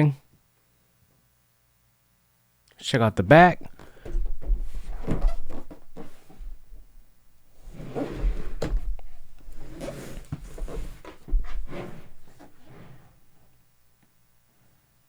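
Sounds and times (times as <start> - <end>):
low bumps: 3.5 - 13.4
cardboard box rustling and scraping: 4.4 - 13.4.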